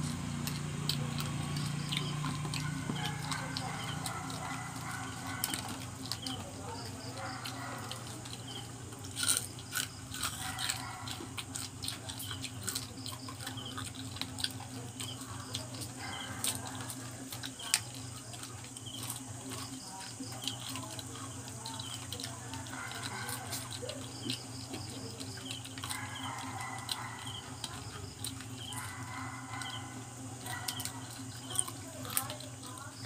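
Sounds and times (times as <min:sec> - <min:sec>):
chewing crispy fried crabs: 0:00.0 - 0:33.0
steady low hum: 0:00.0 - 0:33.0.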